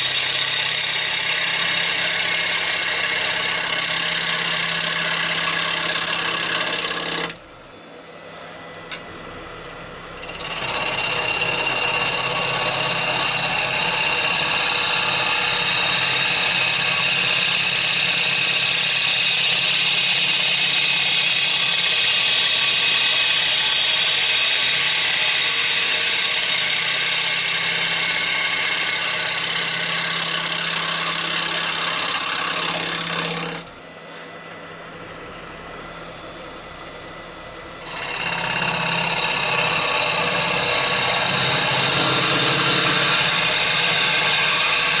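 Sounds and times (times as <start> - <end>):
lathe motor hum: 0.0 - 7.4, 9.0 - 45.0
gouge cutting wood hissing: 10.3 - 33.7, 37.9 - 45.0.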